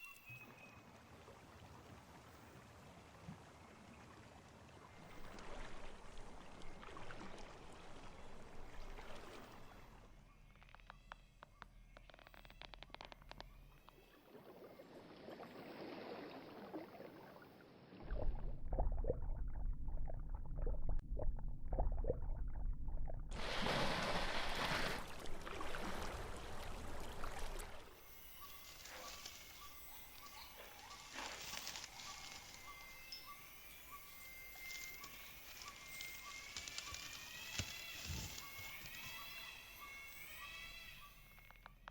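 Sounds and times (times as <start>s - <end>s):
low rumble: 18.0s - 23.8s
animal calls: 28.2s - 41.6s.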